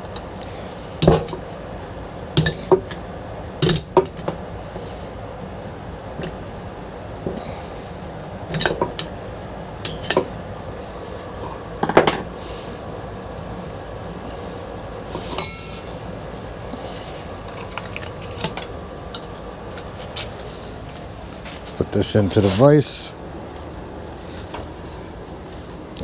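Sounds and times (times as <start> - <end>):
metal clinks and clanks: 15.3 - 16.0
ringing sheet metal clink: 15.4 - 16.0.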